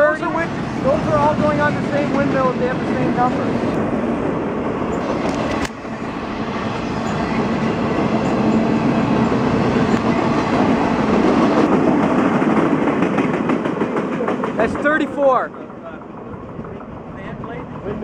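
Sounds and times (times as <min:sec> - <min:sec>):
steel wheels rumbling on rails: 0:00.0 - 0:18.0
clacks over rail joints: 0:11.5 - 0:18.0.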